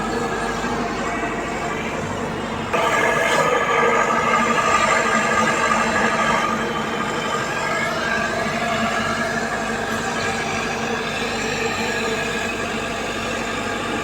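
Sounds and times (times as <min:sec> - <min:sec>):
excavator diesel engine: 0:00.1 - 0:11.0.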